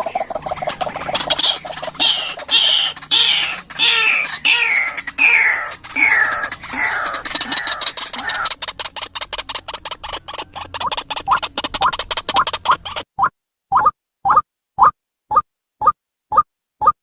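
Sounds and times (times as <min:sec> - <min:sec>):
bird harsh croaking call: 0:00.0 - 0:13.1.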